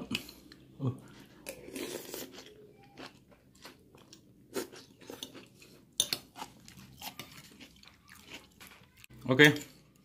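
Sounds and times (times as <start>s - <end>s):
person crunching crackers: 6.2s - 9.2s.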